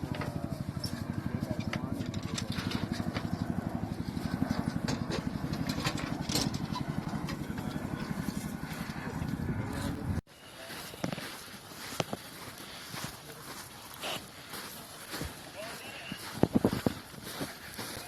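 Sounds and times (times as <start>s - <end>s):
engine throbbing: 0.0s - 10.2s.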